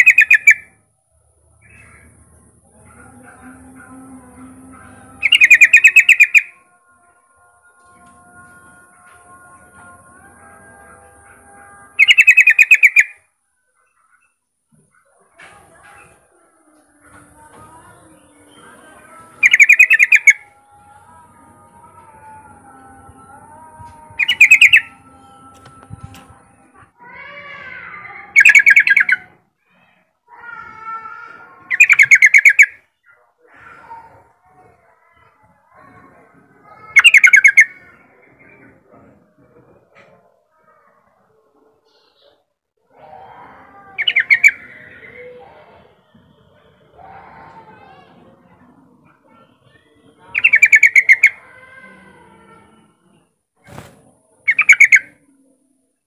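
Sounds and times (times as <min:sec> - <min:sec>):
bird singing rapid notes: 0:00.0 - 0:00.7, 0:04.4 - 0:06.6, 0:12.0 - 0:13.2, 0:18.1 - 0:20.6, 0:24.1 - 0:26.3, 0:28.3 - 0:29.3, 0:31.7 - 0:32.8, 0:50.2 - 0:51.4, 0:54.4 - 0:55.2
bird singing warbling phrases: 0:00.0 - 0:00.8, 0:01.5 - 0:06.7, 0:11.2 - 0:14.4, 0:17.1 - 0:27.0, 0:27.8 - 0:29.4, 0:31.6 - 0:34.2, 0:36.6 - 0:38.8, 0:43.0 - 0:47.6, 0:48.5 - 0:55.4.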